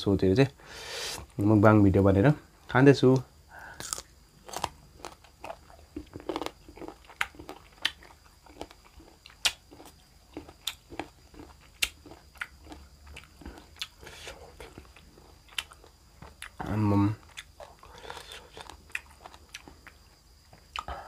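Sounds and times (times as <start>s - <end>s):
mouth clicks and crunches: 3.1s - 16.6s, 17.2s - 20.9s
person chewing food: 3.7s - 16.6s, 17.2s - 21.0s.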